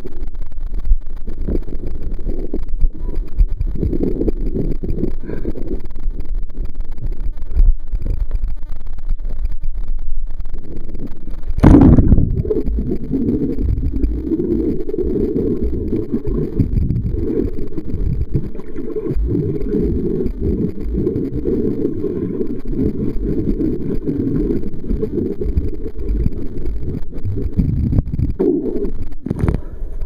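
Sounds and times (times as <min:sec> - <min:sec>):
low rumbling buffeting noise: 0:00.0 - 0:30.0.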